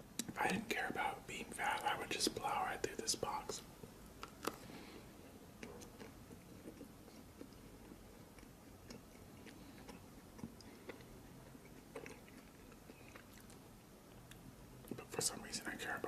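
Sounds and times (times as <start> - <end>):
cookie crunching: 5.6 - 14.4.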